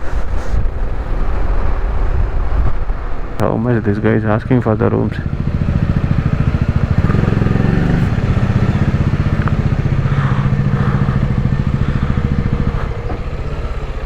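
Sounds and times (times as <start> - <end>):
motorcycle engine idling: 3.8 - 14.0.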